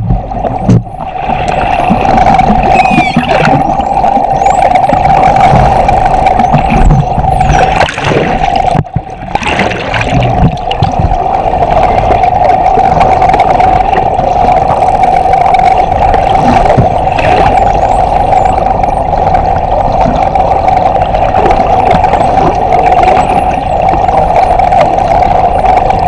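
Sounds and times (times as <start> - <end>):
underwater boat engine drone: 0.0 - 26.0
dolphin whistles: 2.6 - 4.9.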